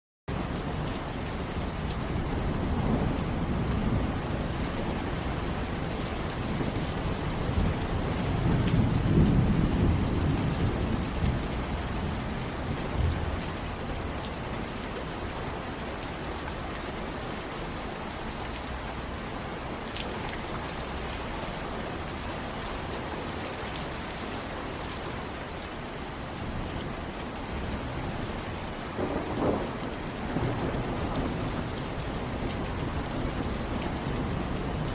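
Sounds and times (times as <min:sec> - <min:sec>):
steady rain falling: 0:00.3 - 0:34.9
thunder rumbling: 0:02.2 - 0:13.4, 0:27.6 - 0:34.9.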